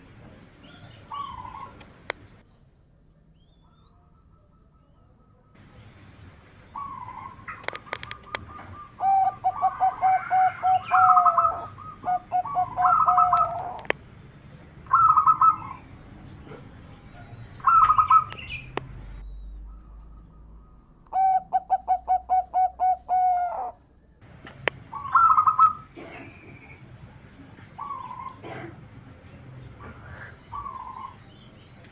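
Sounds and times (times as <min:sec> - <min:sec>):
dove cooing: 0:00.6 - 0:01.9, 0:06.7 - 0:13.9, 0:14.9 - 0:15.9, 0:16.5 - 0:18.7, 0:21.1 - 0:23.8, 0:24.8 - 0:26.7, 0:27.7 - 0:29.0, 0:29.7 - 0:31.3.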